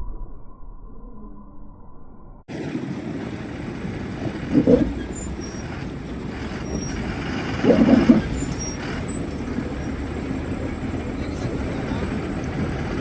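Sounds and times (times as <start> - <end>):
heavy vehicle engine running: 2.5 - 13.0.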